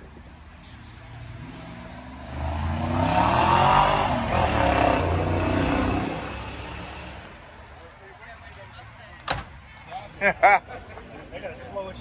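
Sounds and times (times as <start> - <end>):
loud car engine: 0.6 - 7.4.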